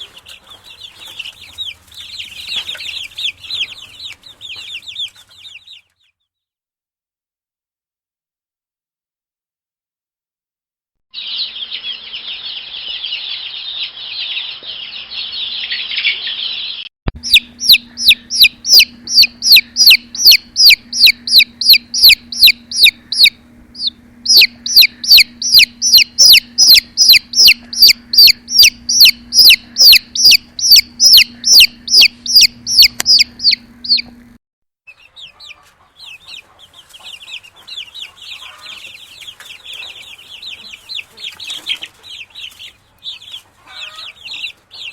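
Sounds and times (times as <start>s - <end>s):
baby chicks peeping: 0.0s - 6.3s, 11.1s - 44.9s
low steady hum: 17.1s - 34.4s.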